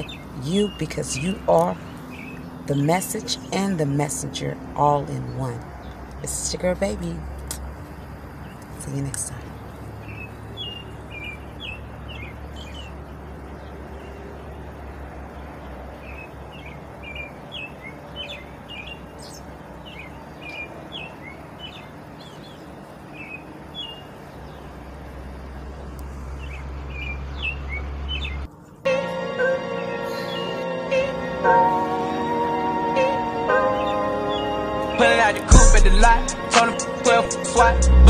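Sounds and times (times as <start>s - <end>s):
small birds chirping: 0.0s - 28.8s, 30.0s - 30.6s, 33.6s - 37.8s
steady background hiss: 16.1s - 26.3s
low rumble: 37.6s - 38.0s.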